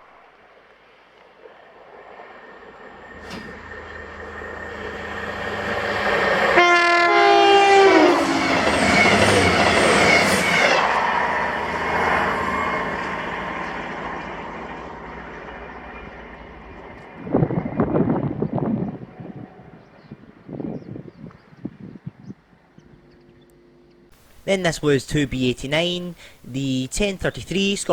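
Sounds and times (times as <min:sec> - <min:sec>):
train passing at speed: 0:00.1 - 0:21.8
train horn: 0:03.0 - 0:14.0.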